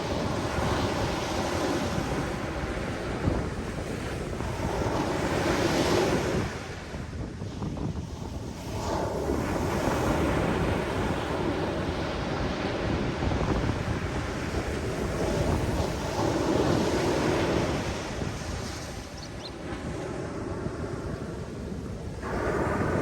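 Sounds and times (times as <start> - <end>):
ocean surf washing ashore: 0.0 - 23.0
wind buffeting microphone: 0.0 - 23.0.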